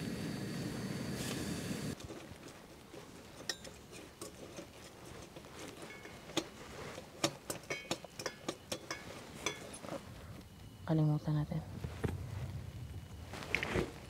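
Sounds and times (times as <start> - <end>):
utensils clinking on dishes: 3.4 - 9.9.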